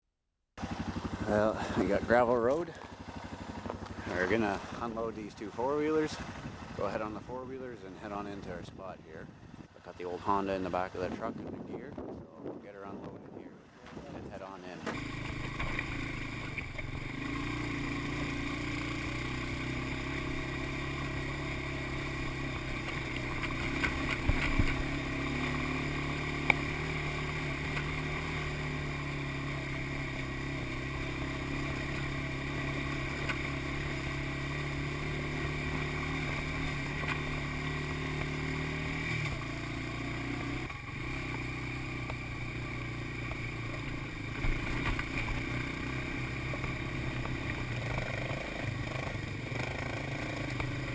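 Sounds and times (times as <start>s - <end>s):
atv engine running: 0.6s - 12.1s, 12.8s - 50.9s.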